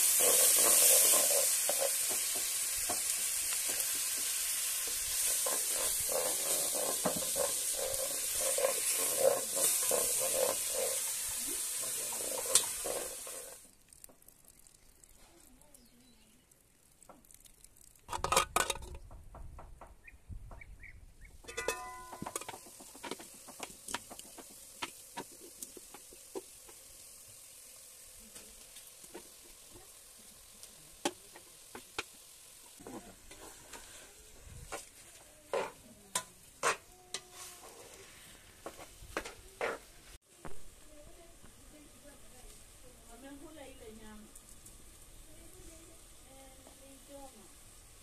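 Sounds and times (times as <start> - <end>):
metal spatula scraping a pot: 0.0 - 13.6, 21.5 - 26.0, 32.8 - 39.9
food sizzling in a frying pan: 0.0 - 18.7, 21.4 - 48.0.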